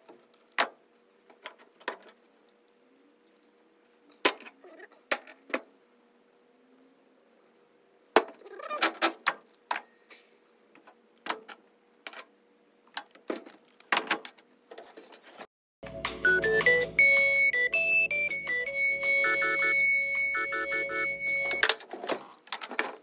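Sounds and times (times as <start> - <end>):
hand tools clinking on metal: 21.4 - 23.0.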